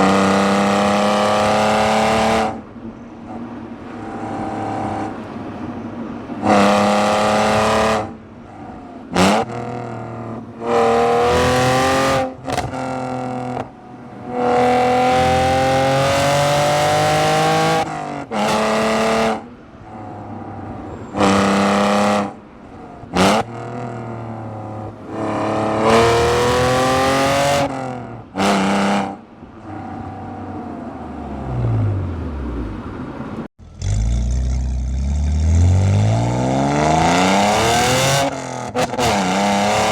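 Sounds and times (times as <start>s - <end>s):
car exhaust revving: 33.6s - 39.9s.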